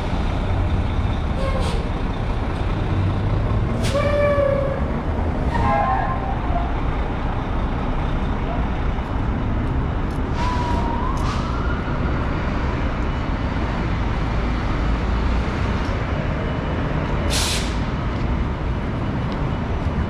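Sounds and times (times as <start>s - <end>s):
street traffic rumble: 0.0s - 20.0s
air brake hiss: 17.3s - 17.8s.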